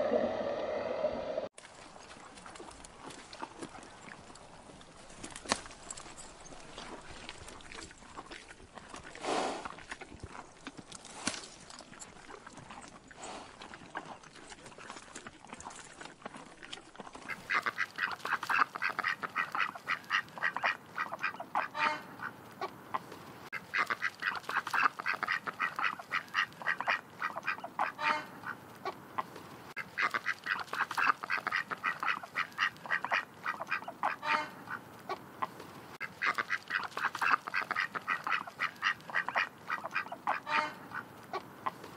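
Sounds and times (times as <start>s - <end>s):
ducks quacking: 17.2s - 41.9s.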